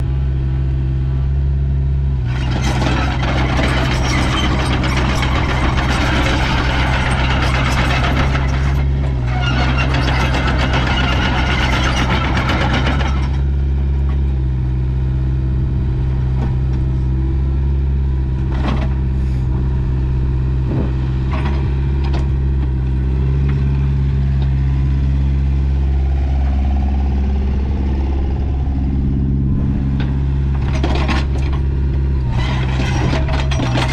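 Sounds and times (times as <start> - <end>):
excavator diesel engine running: 0.0 - 33.9
loud rushing noise: 20.6 - 21.3, 25.9 - 31.4.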